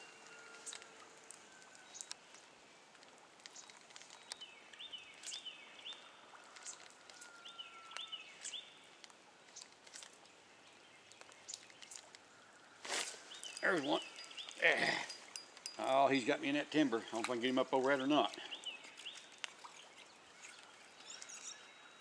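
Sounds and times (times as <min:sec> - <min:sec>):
birds calling high notes: 0:13.2 - 0:18.9.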